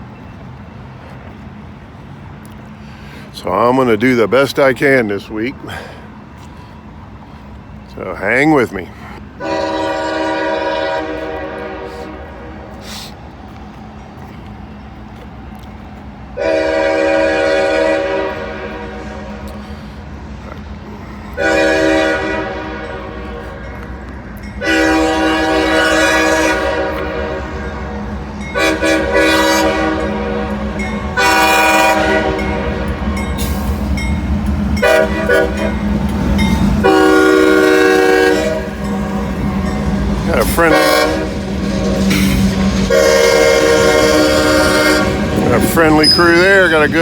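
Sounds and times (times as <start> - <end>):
locomotive engine rumbling: 0.0 - 47.0
locomotive air horn blasts: 9.4 - 13.1, 16.4 - 19.9, 21.4 - 23.9, 24.6 - 33.8, 34.8 - 47.0.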